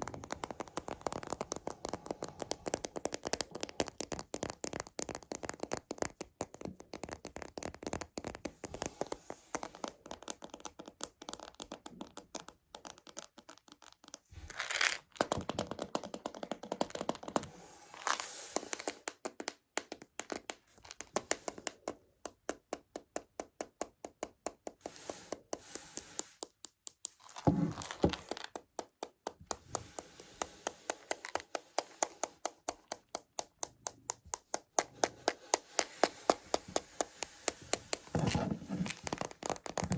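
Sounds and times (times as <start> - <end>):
fingers tapping plastic container: 0.0 - 14.2, 15.2 - 17.5, 18.8 - 39.9
rustling crinkling: 14.5 - 15.0, 27.2 - 28.5, 35.7 - 39.9.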